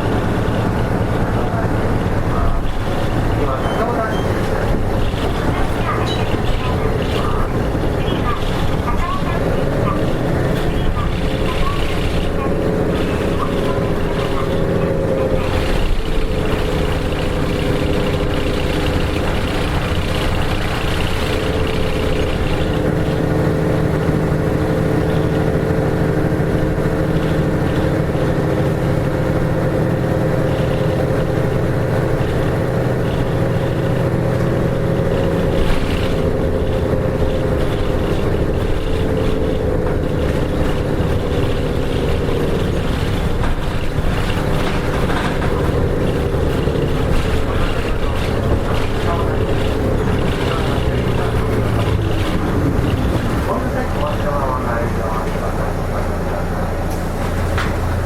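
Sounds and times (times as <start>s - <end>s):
bus diesel engine running: 0.0s - 58.0s
road noise: 0.0s - 58.0s.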